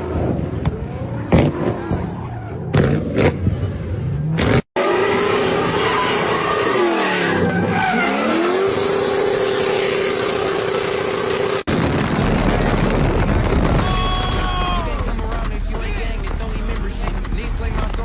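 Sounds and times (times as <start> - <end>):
car engine revving: 2.7 - 18.0
engine pops: 11.7 - 18.0.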